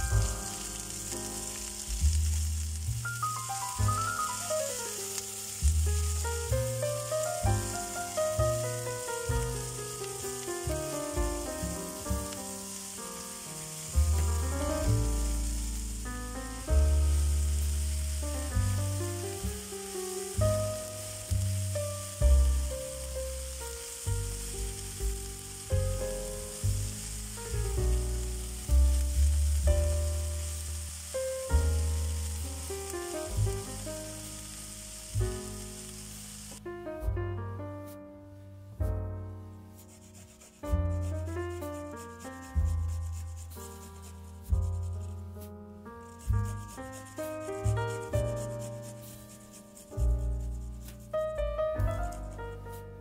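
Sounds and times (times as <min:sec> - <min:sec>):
onions sizzling in a frying pan: 0:00.0 - 0:36.7, 0:39.8 - 0:45.0, 0:46.0 - 0:52.8
background music with piano and bass: 0:00.0 - 0:53.0
spatula turning food: 0:46.1 - 0:51.0.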